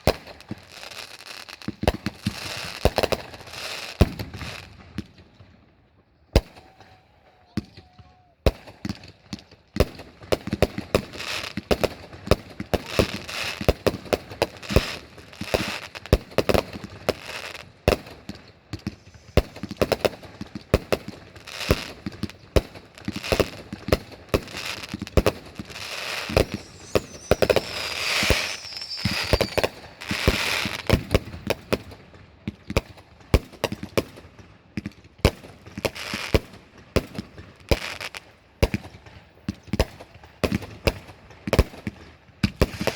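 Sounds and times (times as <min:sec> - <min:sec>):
fireworks bangs and crackling: 0:00.0 - 0:05.8, 0:07.6 - 0:42.9
firework falling whistle: 0:18.8 - 0:20.1, 0:24.4 - 0:31.4.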